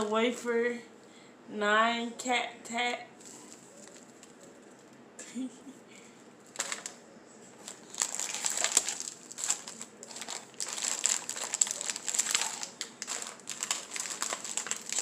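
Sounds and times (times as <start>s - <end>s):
plastic wrappers crinkling: 3.2s - 5.0s, 6.4s - 7.0s, 7.6s - 15.0s.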